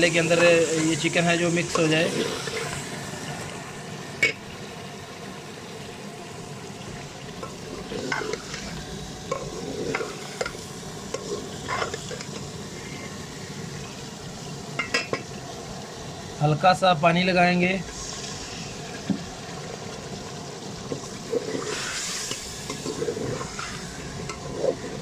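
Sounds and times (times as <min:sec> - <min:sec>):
food sizzling in a pot: 0:00.0 - 0:25.0
utensil scraping and knocking pot: 0:07.4 - 0:12.5, 0:20.9 - 0:25.0.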